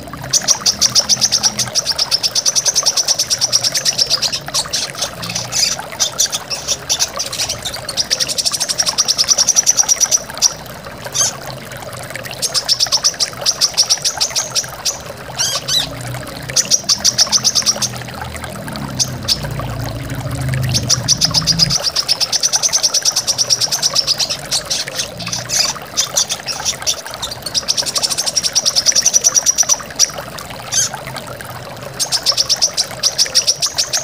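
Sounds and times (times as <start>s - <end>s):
running water: 0.0s - 34.0s
bird singing high chattering trills: 20.7s - 30.0s.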